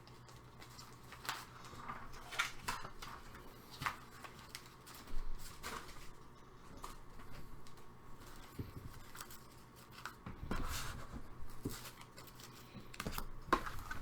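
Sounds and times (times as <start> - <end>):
card packaging rustling and taps: 6.8 - 14.0.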